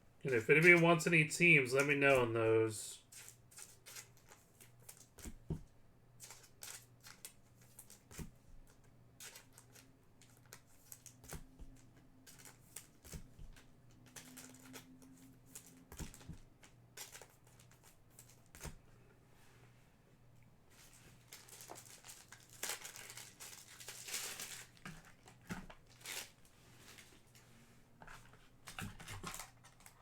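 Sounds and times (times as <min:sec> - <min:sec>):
cards clicking and rustling: 0:06.2 - 0:18.8.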